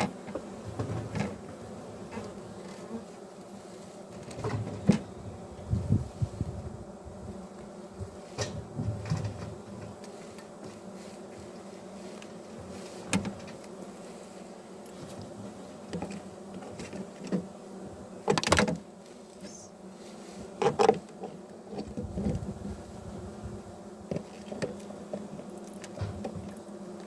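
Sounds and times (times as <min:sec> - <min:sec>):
knocks and clatters of hive parts: 0:00.0 - 0:03.0, 0:04.1 - 0:05.2, 0:07.5 - 0:13.9, 0:14.8 - 0:19.6, 0:20.4 - 0:22.6, 0:23.9 - 0:27.0
honeybees buzzing: 0:00.0 - 0:27.0.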